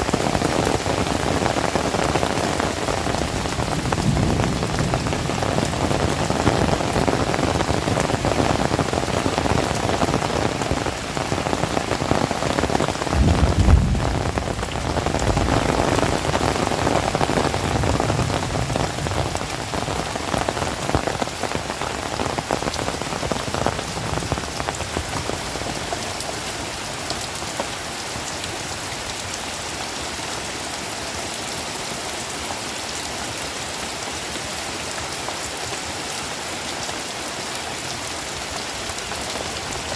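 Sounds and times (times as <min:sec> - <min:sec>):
heavy rain falling: 0:00.0 - 0:39.9
low rumble: 0:13.2 - 0:15.6.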